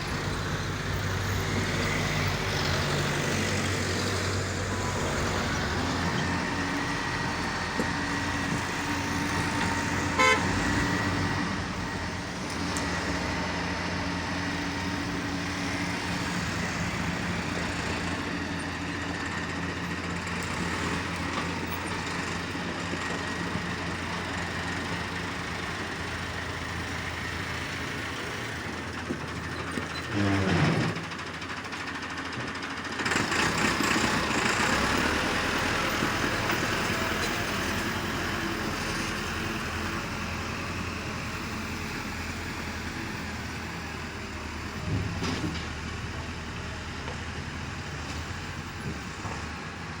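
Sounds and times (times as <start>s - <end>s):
diesel engine running: 0.0s - 50.0s
horn toot: 10.1s - 10.6s.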